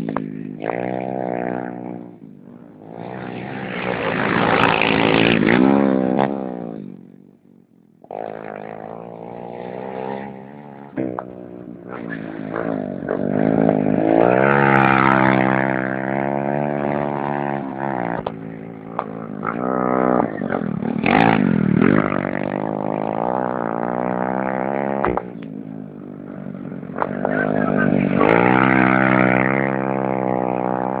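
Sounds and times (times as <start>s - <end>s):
racing motorcycle engines revving: 0.0s - 31.0s.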